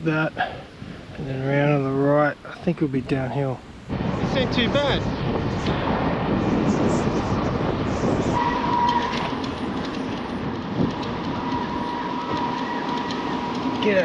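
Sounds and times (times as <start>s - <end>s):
wind: 0.0s - 14.0s
bicycle brake squealing: 8.2s - 9.9s, 11.2s - 14.0s.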